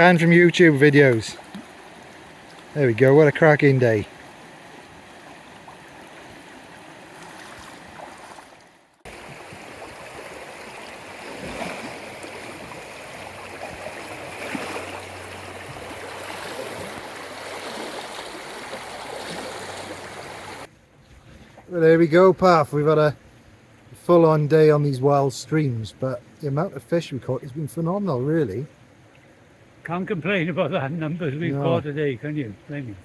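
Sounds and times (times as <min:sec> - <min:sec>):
stream rushing over rocks: 0:09.1 - 0:20.7.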